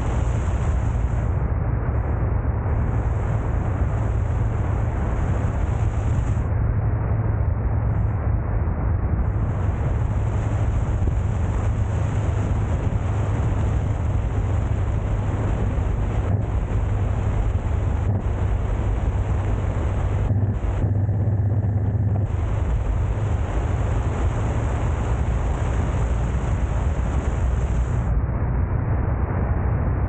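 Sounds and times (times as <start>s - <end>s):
stream rushing: 22.2s - 28.1s.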